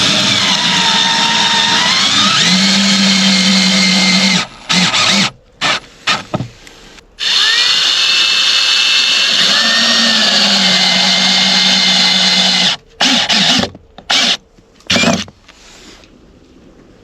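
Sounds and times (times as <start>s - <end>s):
electric power drill running: 0.0s - 5.3s, 7.2s - 15.2s.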